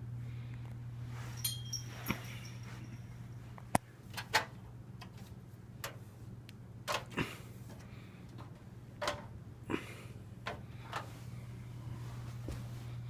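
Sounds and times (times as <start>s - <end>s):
steady low hum: 0.0s - 13.0s
fan being handled clicks: 3.6s - 9.3s, 10.4s - 11.1s.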